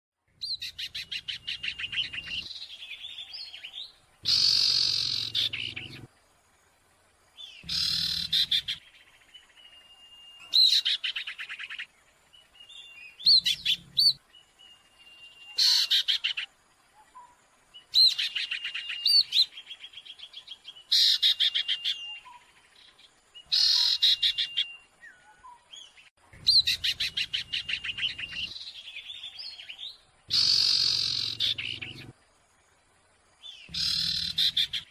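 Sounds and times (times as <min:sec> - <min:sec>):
bird chattering calls: 0:04.2 - 0:06.1, 0:07.6 - 0:08.8, 0:13.2 - 0:14.2, 0:15.6 - 0:16.5, 0:23.5 - 0:24.6, 0:26.4 - 0:28.5, 0:30.3 - 0:32.1, 0:33.7 - 0:34.9
thin whistled bird notes: 0:17.0 - 0:19.9.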